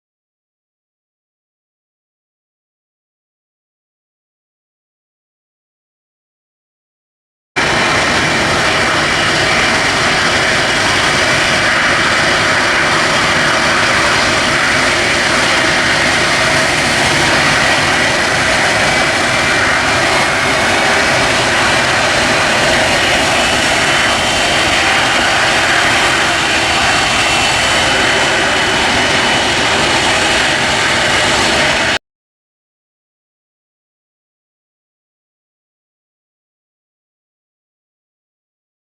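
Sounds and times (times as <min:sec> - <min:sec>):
jet engine roar with high whine: 0:07.6 - 0:32.0.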